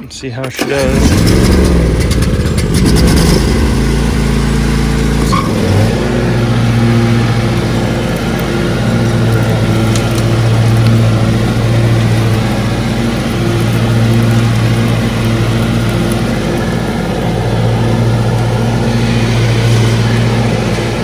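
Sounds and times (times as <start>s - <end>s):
riding mower engine running: 0.0s - 21.0s
hiss: 17.3s - 21.0s.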